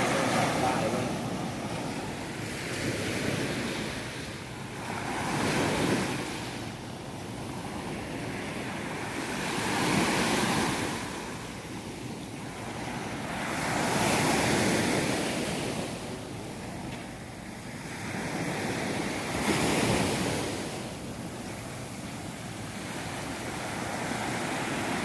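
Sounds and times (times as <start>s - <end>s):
waves breaking on shore: 0.0s - 25.0s.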